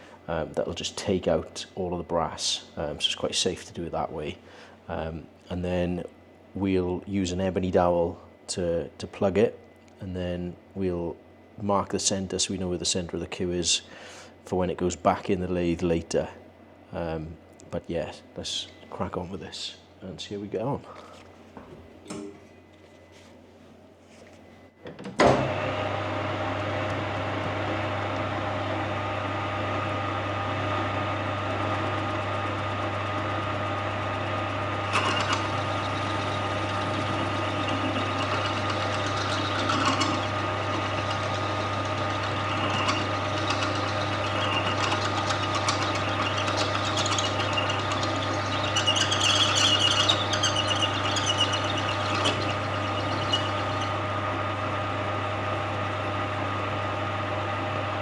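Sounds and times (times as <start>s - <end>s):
lathe motor running: 25.4s - 58.0s
drill bit scraping brass: 30.6s - 55.2s.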